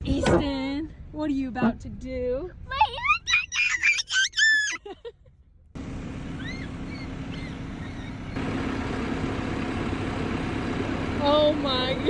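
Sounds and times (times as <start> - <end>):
tractor engine running: 5.8 - 12.0.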